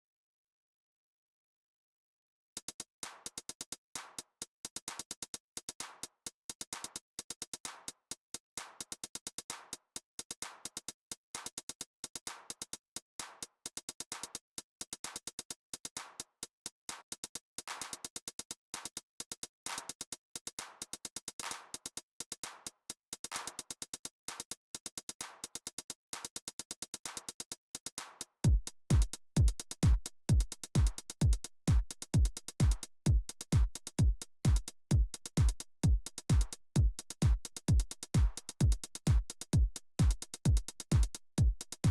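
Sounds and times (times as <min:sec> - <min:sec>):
drum machine hi-hat ticks: 0:02.6 - 0:41.9
deep kick drum: 0:28.4 - 0:41.9.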